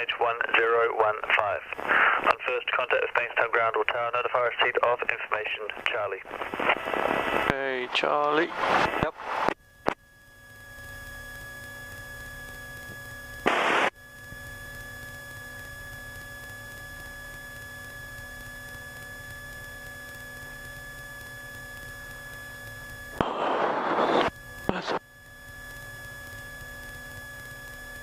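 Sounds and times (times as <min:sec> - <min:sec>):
electrical hum and whine: 0:00.0 - 0:28.0
burst of static: 0:01.3 - 0:10.0, 0:13.4 - 0:14.0, 0:23.1 - 0:25.0.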